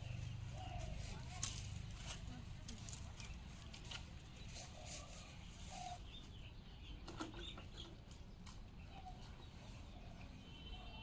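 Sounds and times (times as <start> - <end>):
low bird calls: 0.0 - 1.4, 4.2 - 11.0.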